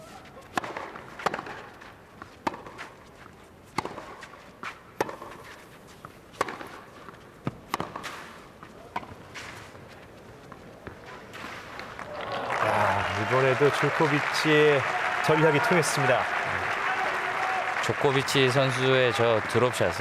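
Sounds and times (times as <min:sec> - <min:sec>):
players' feet scuffing: 0:00.0 - 0:11.9
racket striking tennis ball: 0:00.5 - 0:01.7, 0:02.4 - 0:02.9, 0:03.7 - 0:05.6, 0:06.4 - 0:06.8, 0:07.4 - 0:09.7.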